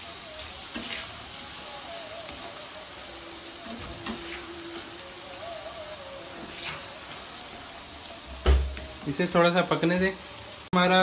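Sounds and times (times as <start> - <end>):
masala sizzling in a frying pan: 0.0 - 11.0
spatula scraping a pan: 0.5 - 1.4, 3.6 - 5.0, 6.3 - 7.2.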